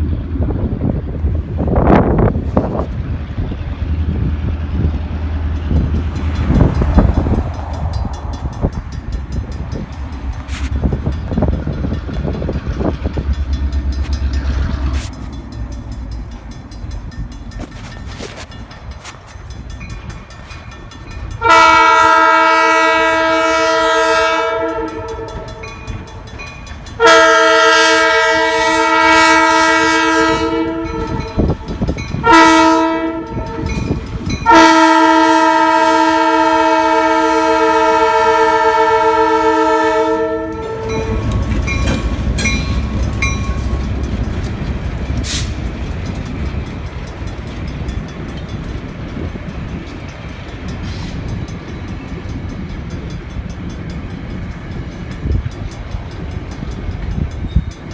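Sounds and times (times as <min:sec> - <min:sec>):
locomotive rumbling past: 0:00.0 - 0:57.9
locomotive air horn blasts: 0:21.4 - 0:25.7, 0:27.0 - 0:44.0.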